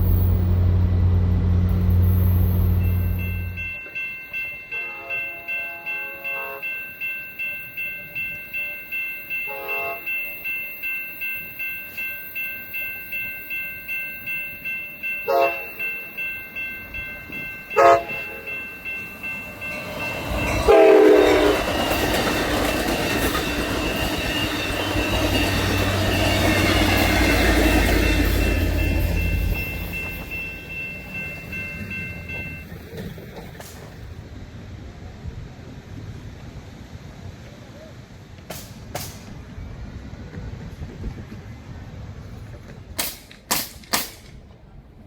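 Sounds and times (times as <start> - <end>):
crossing bell ringing: 0.0 - 33.6
train wheels rumbling on rails: 0.0 - 45.0
train horn blasts: 4.7 - 6.8, 9.5 - 10.2, 15.2 - 15.8, 17.7 - 18.6, 20.4 - 22.0.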